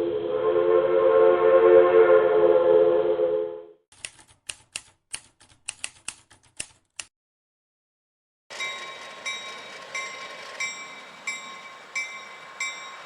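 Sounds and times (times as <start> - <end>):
locomotive air horn: 0.0 - 3.8
sharp typewriter-like clicks: 3.9 - 7.1.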